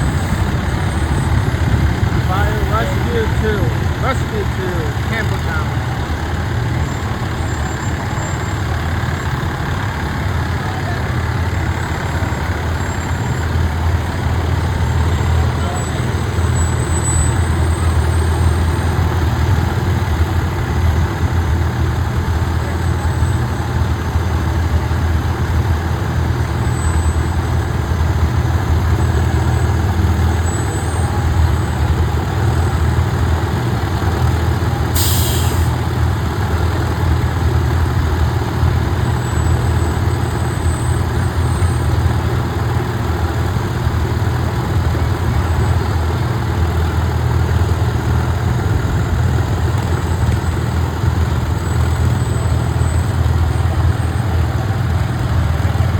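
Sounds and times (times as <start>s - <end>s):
diesel engine idling: 0.0s - 55.9s
air hiss: 35.0s - 35.7s.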